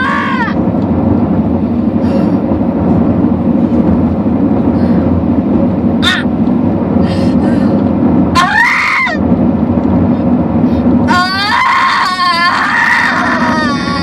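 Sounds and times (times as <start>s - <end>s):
car cabin road and engine noise: 0.0s - 14.0s
person crying out in pain: 11.1s - 14.0s.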